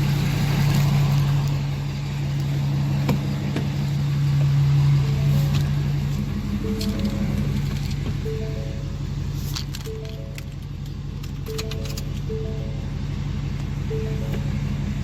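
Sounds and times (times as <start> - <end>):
diesel engine idling: 0.0 - 15.0
rising three-note chime: 8.2 - 9.1, 11.5 - 13.1, 13.8 - 14.9.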